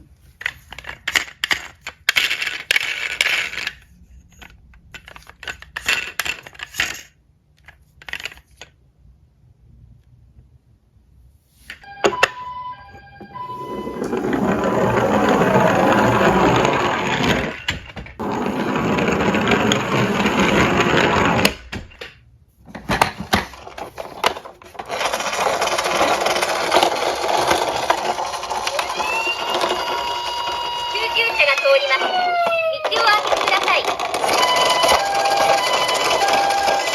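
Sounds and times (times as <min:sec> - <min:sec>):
toy cars clinking: 0:00.3 - 0:08.8, 0:11.8 - 0:22.2, 0:22.8 - 0:36.9
metal toy cars rattling downhill: 0:13.4 - 0:22.1, 0:22.7 - 0:36.9.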